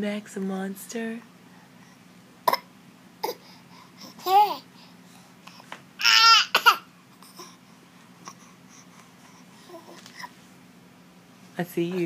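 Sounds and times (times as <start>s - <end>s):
baby growling: 3.2s - 4.7s, 6.0s - 7.6s.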